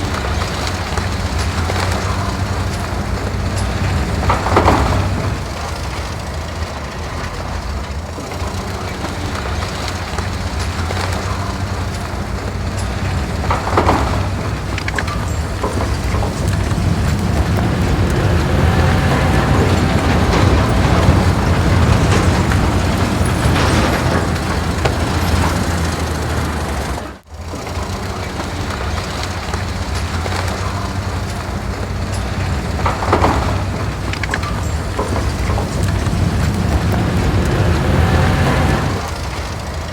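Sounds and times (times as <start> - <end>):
large vehicle engine rumble: 0.0 - 39.9.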